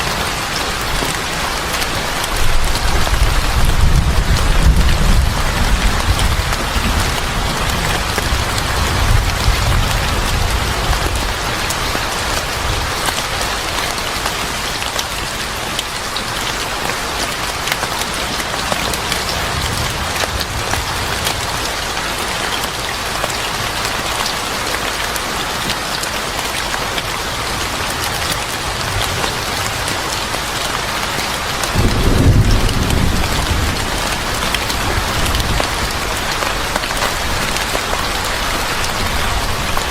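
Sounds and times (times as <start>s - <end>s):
steady rain falling: 0.0s - 39.9s
thunder rumbling: 2.4s - 11.3s, 31.8s - 37.6s.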